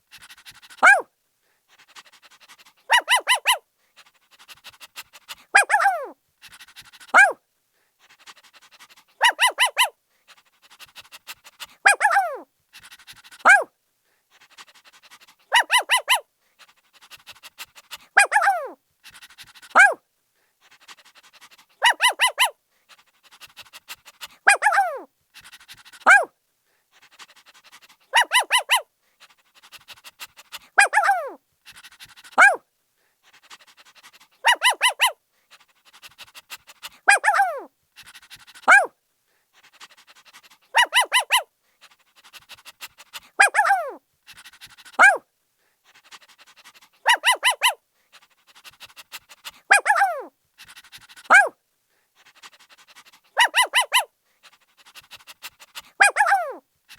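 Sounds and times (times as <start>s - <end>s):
puppy barking and yelping: 0.2s - 1.1s, 2.0s - 3.6s, 4.4s - 7.4s, 9.1s - 9.9s, 10.7s - 13.7s, 14.5s - 16.3s, 17.0s - 20.0s, 21.2s - 22.6s, 23.2s - 26.3s, 27.2s - 32.6s, 33.4s - 38.9s, 40.2s - 41.5s, 42.2s - 45.2s, 46.5s - 47.8s, 48.6s - 51.6s, 52.4s - 54.1s, 54.8s - 56.6s.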